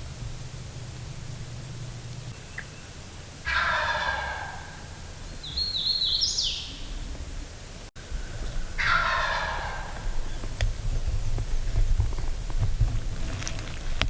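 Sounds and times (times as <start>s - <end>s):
small bird chirping: 0.0s - 3.9s, 5.1s - 12.6s
turkey gobbling: 0.0s - 7.5s, 8.1s - 10.9s.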